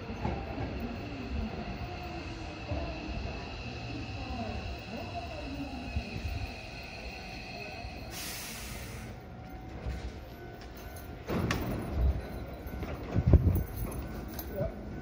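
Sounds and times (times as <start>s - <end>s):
train rumbling at platform: 0.0s - 15.0s
air hiss: 5.7s - 9.2s.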